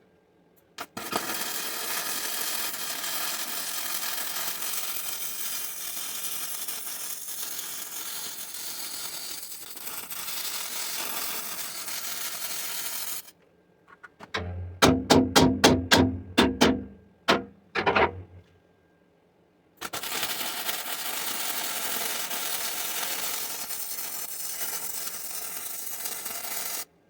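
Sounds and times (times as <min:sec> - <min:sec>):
arc welding crackling sizzle: 0:00.8 - 0:13.4, 0:19.8 - 0:27.0.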